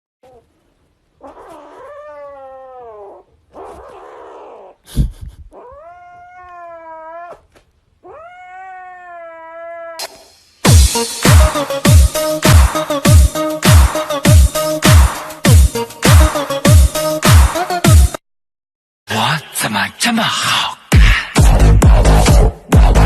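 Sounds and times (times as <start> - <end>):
cat yowling: 1.2 - 4.8, 5.5 - 10.2
music: 10.0 - 18.2, 20.9 - 23.0.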